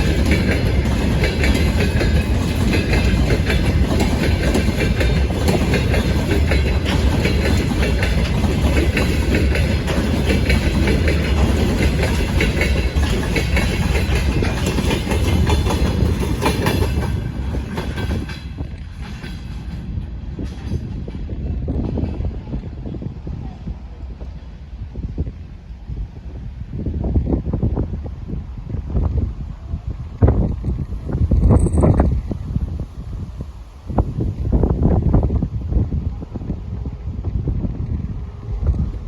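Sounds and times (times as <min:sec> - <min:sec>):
freight train wheels clacking: 0:00.0 - 0:23.0, 0:30.4 - 0:32.3.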